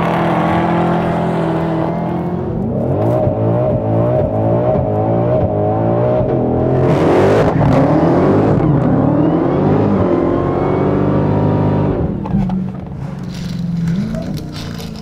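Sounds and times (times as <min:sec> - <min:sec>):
muscle car engine revving: 0:00.0 - 0:12.2
tyres spinning in burnout: 0:12.0 - 0:15.0.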